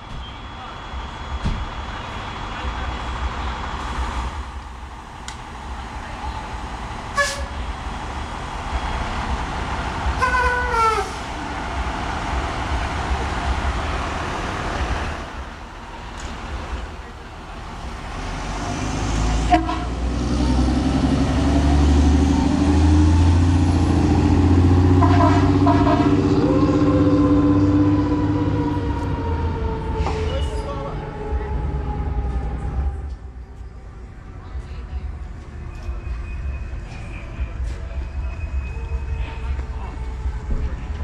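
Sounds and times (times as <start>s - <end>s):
heavy truck engine rumble: 0.0s - 41.0s
fire truck horn blasts: 7.2s - 7.6s, 10.2s - 11.2s, 19.4s - 20.3s, 24.8s - 28.4s.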